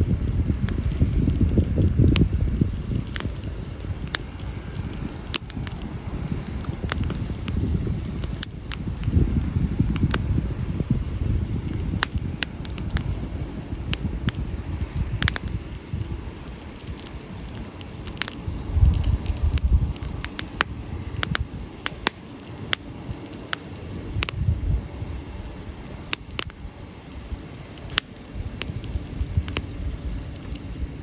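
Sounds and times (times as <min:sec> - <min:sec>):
campfire crackling and popping: 0:00.0 - 0:31.0
low fire rumble: 0:00.0 - 0:31.0.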